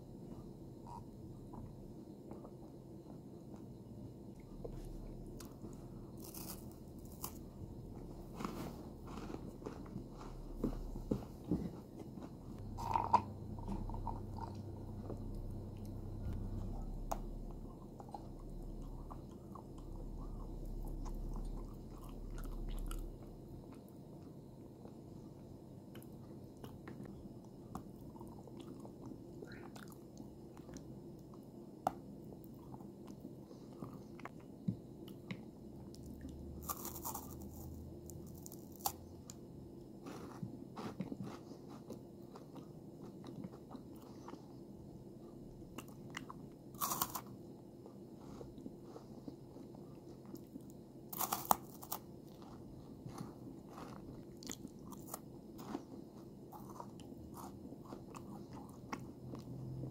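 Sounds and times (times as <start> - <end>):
person chewing chocolate: 0.3 - 39.4, 40.0 - 59.9
sharp crunchy bites: 36.6 - 39.0, 46.8 - 47.3, 51.1 - 55.8.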